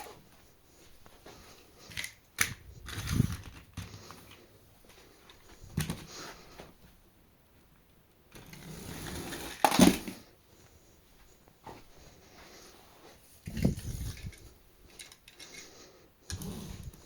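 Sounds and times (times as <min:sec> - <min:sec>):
toy cars rolling on track: 0:08.4 - 0:10.1.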